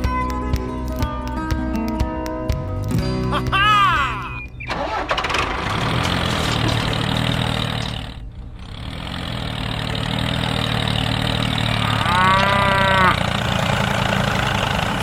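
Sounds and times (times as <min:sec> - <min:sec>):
tractor engine idling: 0:03.6 - 0:15.0.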